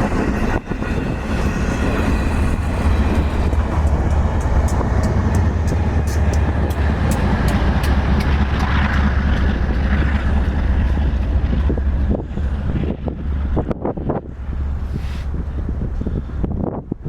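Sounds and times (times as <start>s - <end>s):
train rumbling past: 0.0s - 17.0s
wind buffeting microphone: 0.0s - 17.0s
train wheel clicks: 2.6s - 12.2s.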